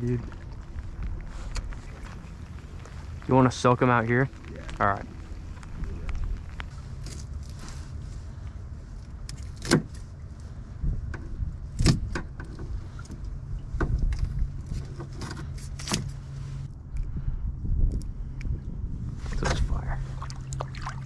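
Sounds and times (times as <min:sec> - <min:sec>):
small boat motor humming: 0:00.0 - 0:09.2.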